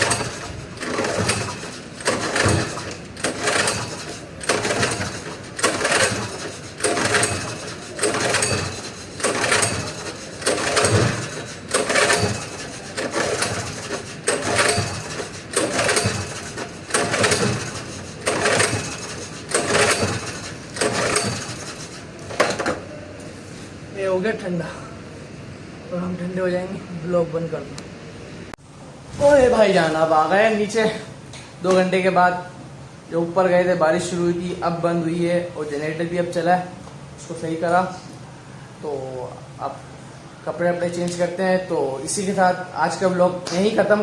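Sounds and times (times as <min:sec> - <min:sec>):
generator recoil cord pulls: 0:00.0 - 0:23.4.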